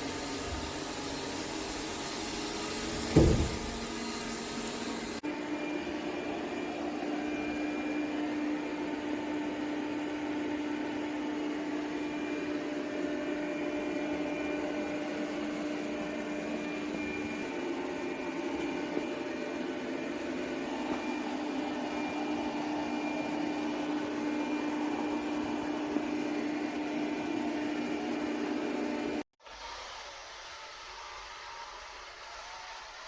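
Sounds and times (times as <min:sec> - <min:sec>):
robot vacuum running: 0:00.0 - 0:09.4.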